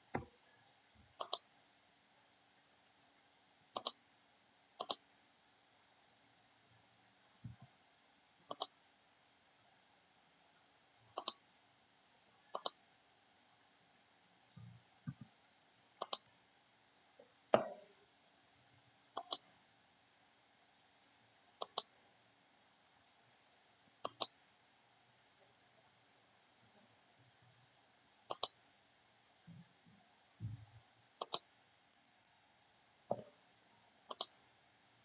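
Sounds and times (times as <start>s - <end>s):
mouse button clicks: 1.2s - 1.4s, 3.8s - 4.0s, 4.8s - 5.0s, 8.5s - 8.7s, 12.6s - 12.8s, 16.0s - 16.2s, 19.2s - 19.4s, 21.6s - 21.9s, 24.0s - 24.3s, 28.3s - 28.5s, 31.2s - 31.4s, 34.1s - 34.3s.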